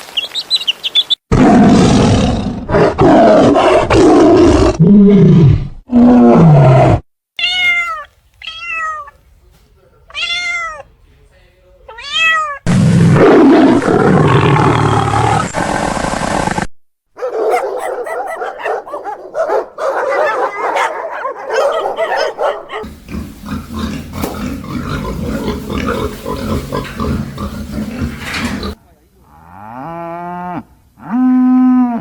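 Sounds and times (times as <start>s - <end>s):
growl-like animal call: 1.3s - 7.0s, 12.7s - 16.6s, 17.2s - 32.0s
cat meowing: 7.4s - 9.2s, 10.1s - 10.9s, 11.9s - 12.7s.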